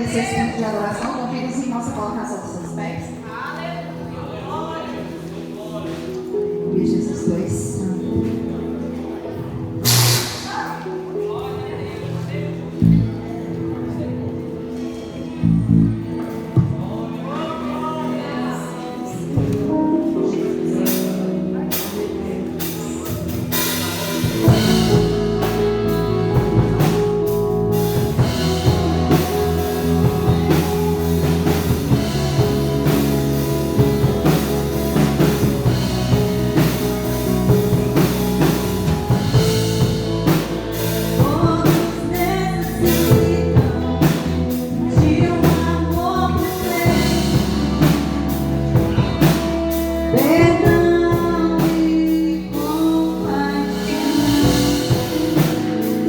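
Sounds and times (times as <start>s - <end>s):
band playing: 9.7s - 11.3s, 19.0s - 56.0s
person singing: 41.1s - 48.4s, 50.1s - 56.0s.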